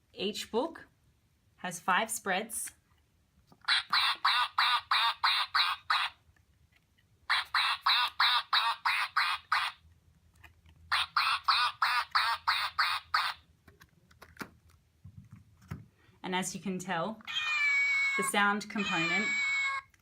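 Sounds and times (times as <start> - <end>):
recorded duck quacking from speaker: 3.7 - 6.2, 7.3 - 9.8, 10.9 - 13.4, 18.0 - 19.8.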